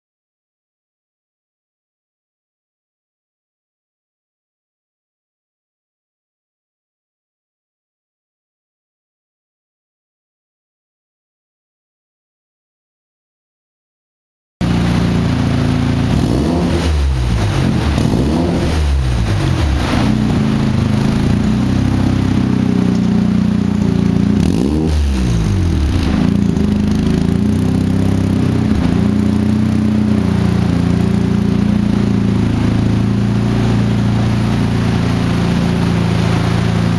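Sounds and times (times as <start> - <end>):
rotary engine idling and revving: 14.6 - 36.9.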